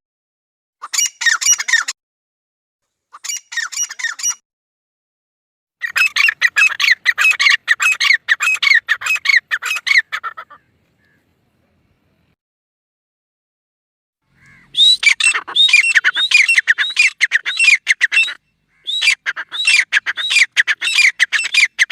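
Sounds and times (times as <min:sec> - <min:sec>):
partridge calling: 0:00.8 - 0:01.9, 0:03.1 - 0:04.4, 0:05.8 - 0:11.2, 0:14.3 - 0:21.9.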